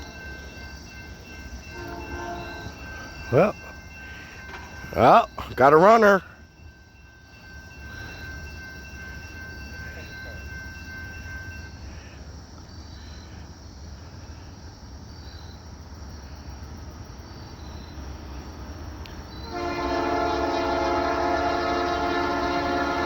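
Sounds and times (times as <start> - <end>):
diesel locomotives rumbling: 0.0 - 23.0
locomotive air horn: 1.7 - 3.5, 19.4 - 23.0.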